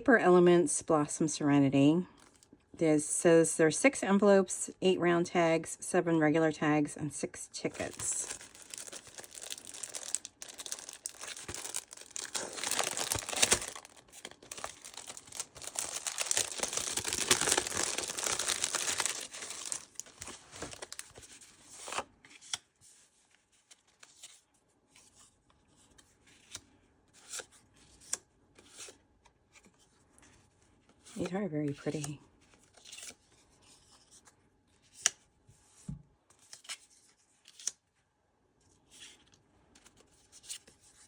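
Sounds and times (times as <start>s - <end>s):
packaging torn open and crinkled: 7.8s - 21.2s.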